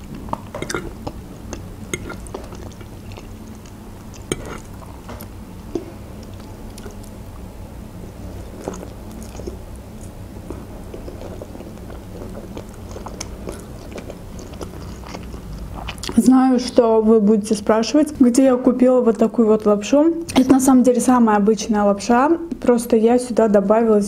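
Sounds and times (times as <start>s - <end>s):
person chewing and slurping noodles: 0.0s - 7.2s, 8.1s - 16.2s
steady low hum: 0.0s - 24.0s.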